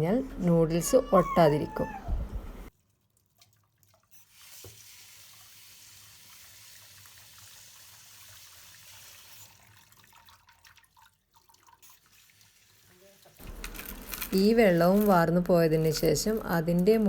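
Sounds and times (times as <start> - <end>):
tap water running: 3.4 - 14.5.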